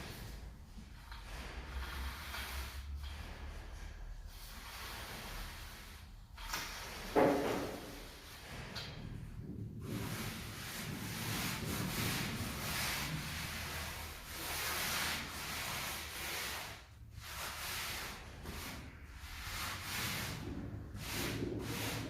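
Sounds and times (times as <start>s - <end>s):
hand tool scraping mortar: 9.8s - 22.0s.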